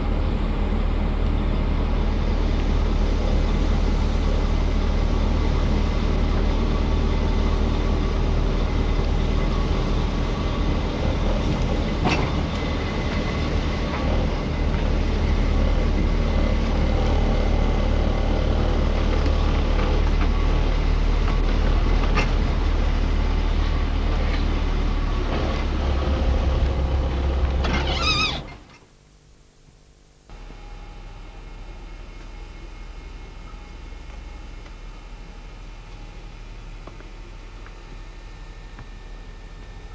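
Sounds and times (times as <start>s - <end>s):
car engine and road noise: 22.8s - 28.6s
brief warbling squeal: 27.6s - 28.7s.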